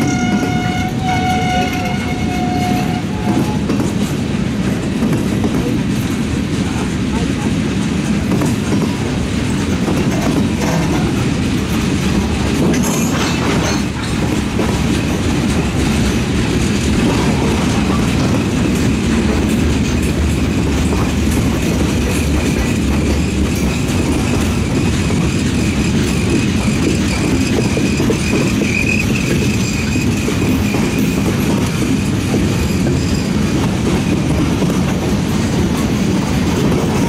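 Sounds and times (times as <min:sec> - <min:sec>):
freight train wheels rumbling: 0:00.0 - 0:37.0.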